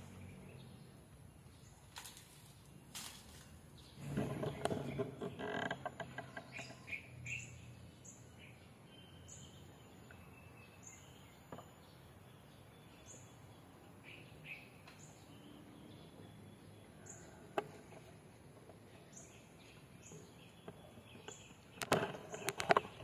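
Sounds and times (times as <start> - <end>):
rustling and crackling: 1.7 - 6.8, 17.5 - 23.0
small bird chirping: 3.7 - 23.0.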